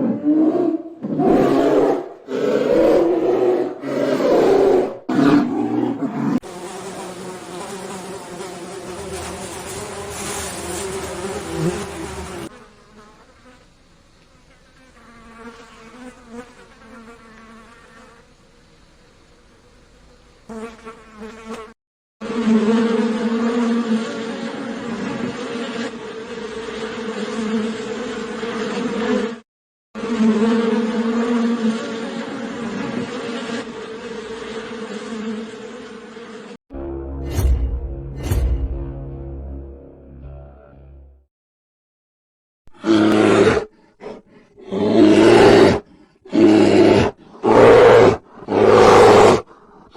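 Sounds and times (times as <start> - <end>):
flying insect buzzing: 6.2 - 18.5, 20.5 - 29.4, 30.0 - 36.6.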